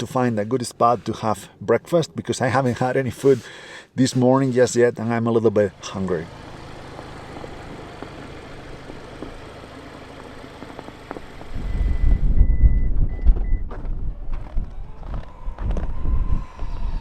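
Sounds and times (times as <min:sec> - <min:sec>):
car humming: 0:05.5 - 0:17.0
wind rumbling on microphone: 0:11.4 - 0:17.0.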